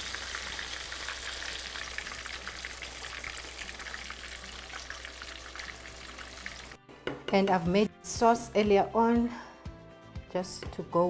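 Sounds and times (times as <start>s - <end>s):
chicken frying in hot oil: 0.0s - 6.8s.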